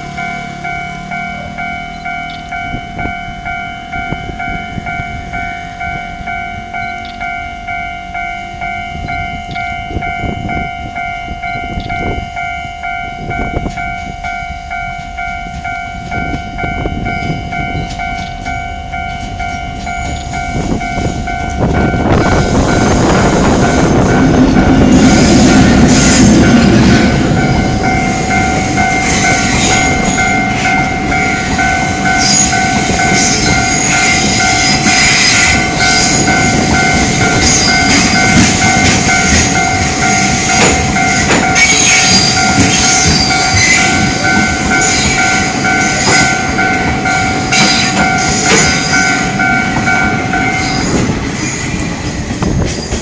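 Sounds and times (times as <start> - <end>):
level-crossing warning bell: 0.0 - 53.0
train wheels rumbling on rail: 0.0 - 53.0
wheels clacking: 14.8 - 53.0
wheels squealing: 22.2 - 53.0.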